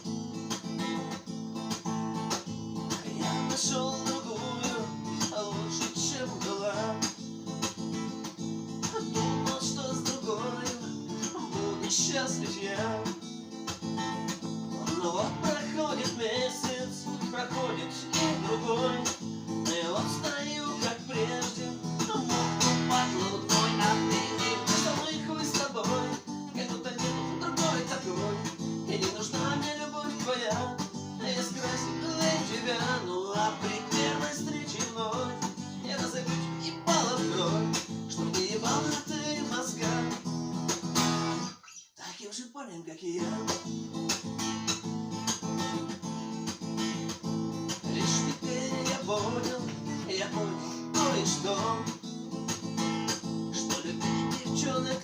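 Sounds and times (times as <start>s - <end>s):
acoustic guitar playing: 0.0s - 41.6s, 43.2s - 55.0s.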